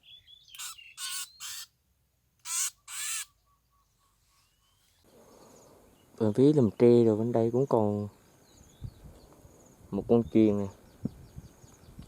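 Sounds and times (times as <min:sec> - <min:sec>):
bird harsh raspy calls: 0:00.0 - 0:01.7, 0:02.4 - 0:04.8.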